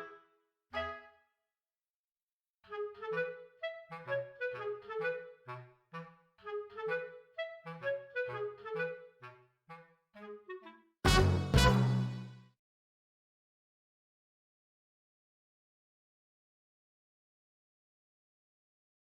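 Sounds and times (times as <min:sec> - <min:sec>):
lively background music: 0:11.1 - 0:12.4.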